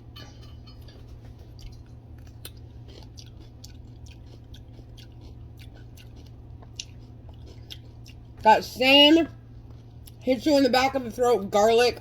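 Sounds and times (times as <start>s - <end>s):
low hum: 0.0s - 12.0s
chewing crisp vegetable: 1.2s - 10.4s.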